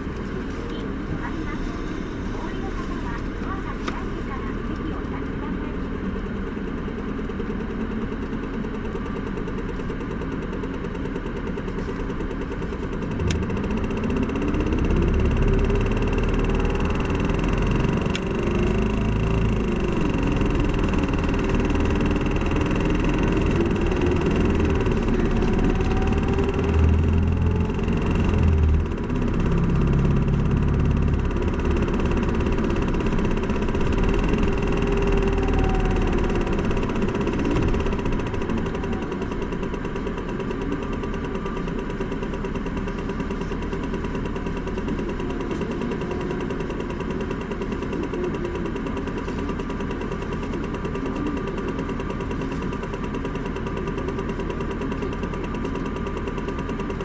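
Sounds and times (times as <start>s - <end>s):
diesel bus engine running: 0.0s - 57.0s.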